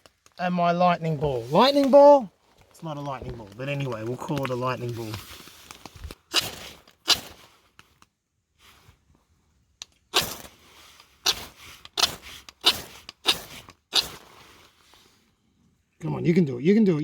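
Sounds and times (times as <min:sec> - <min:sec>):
ferro rod scraping sparks: 0:04.4 - 0:07.5, 0:10.1 - 0:14.6.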